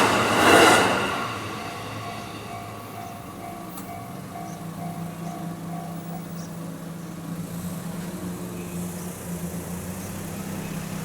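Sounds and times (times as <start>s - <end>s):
level-crossing warning bell: 1.1s - 7.3s
vehicle engines idling: 1.8s - 11.0s.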